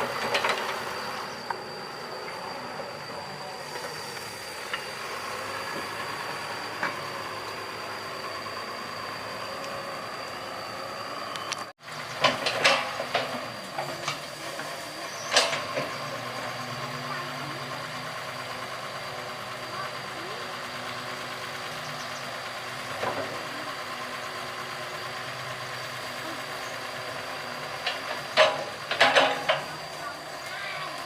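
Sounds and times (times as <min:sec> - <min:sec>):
excavator engine running: 0:00.0 - 0:31.0
metallic clanks and knocks: 0:12.2 - 0:13.4, 0:27.8 - 0:29.7.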